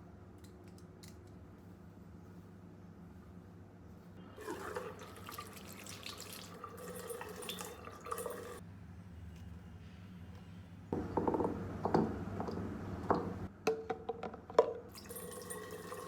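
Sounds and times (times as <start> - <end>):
tap water running into sink: 4.4 - 8.6, 14.9 - 16.0.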